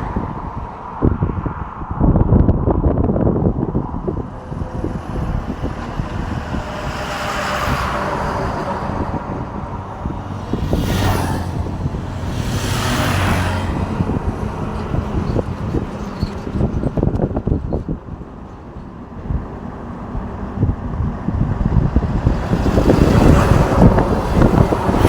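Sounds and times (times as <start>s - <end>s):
vehicles swishing past: 0.0s - 25.0s
low engine drone: 2.4s - 17.5s.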